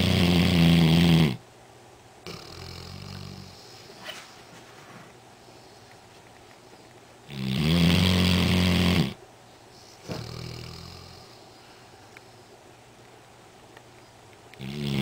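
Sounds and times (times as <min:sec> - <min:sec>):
dog snoring: 0:00.0 - 0:01.4, 0:02.2 - 0:04.2, 0:07.2 - 0:09.2, 0:10.0 - 0:11.6, 0:14.6 - 0:15.0.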